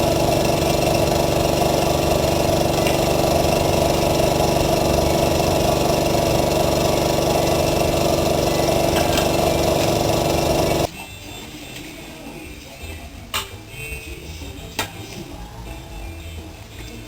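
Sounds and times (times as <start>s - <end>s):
small machine motor running: 0.0s - 10.9s.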